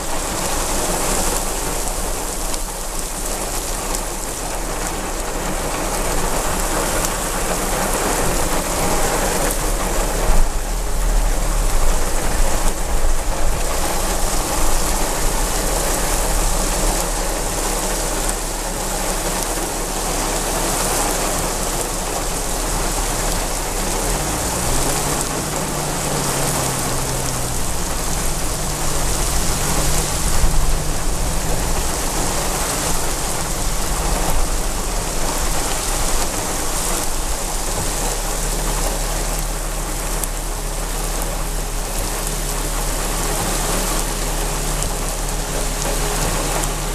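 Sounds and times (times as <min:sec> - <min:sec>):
heavy rain falling: 0:00.0 - 0:46.9
low hum: 0:22.3 - 0:35.4.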